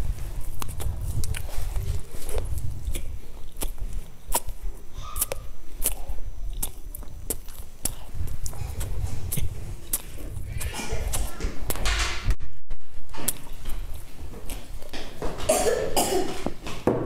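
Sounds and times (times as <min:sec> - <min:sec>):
mouth chewing sounds: 0:00.0 - 0:11.8, 0:13.2 - 0:15.0.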